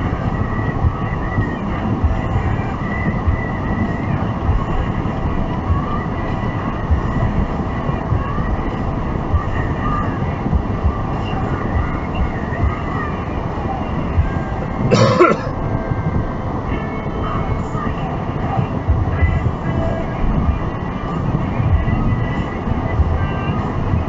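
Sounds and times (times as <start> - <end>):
car road and engine rumble: 0.0 - 24.0
low buffeting on microphone: 0.0 - 24.0.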